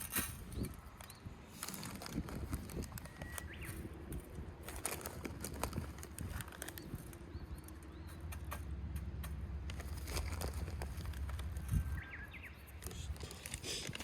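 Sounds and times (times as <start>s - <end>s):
wood chips clicking and rattling: 0.0s - 8.6s, 9.2s - 12.0s.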